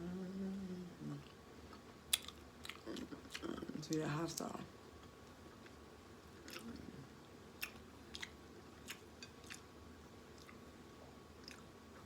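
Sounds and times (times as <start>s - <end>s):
person chewing with mouth smacks: 1.2s - 4.0s, 6.4s - 7.0s, 7.6s - 9.7s, 10.3s - 10.6s, 11.4s - 11.7s.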